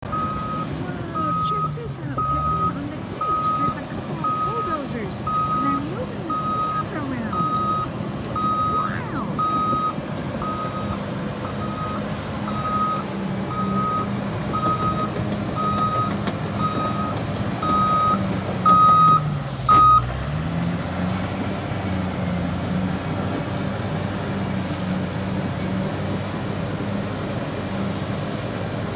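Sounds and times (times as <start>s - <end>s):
diesel engine running: 0.0s - 28.9s
reversing alarm beeping: 0.1s - 20.1s.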